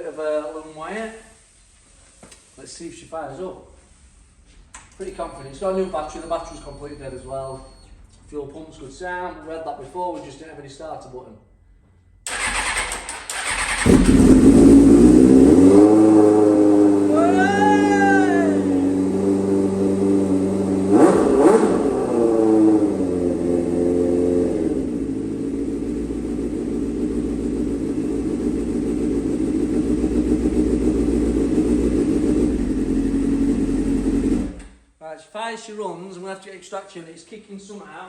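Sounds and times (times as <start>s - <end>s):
motorcycle engine revving and idling: 12.3s - 34.8s.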